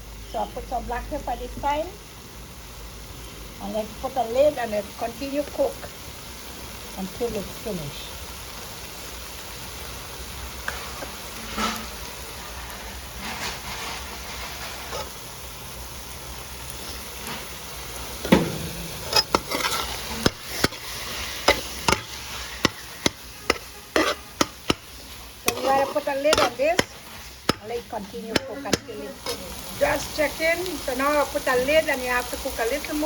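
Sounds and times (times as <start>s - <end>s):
fish frying in a pot: 0.0s - 33.0s
spoon knocking against pot: 21.5s - 24.9s.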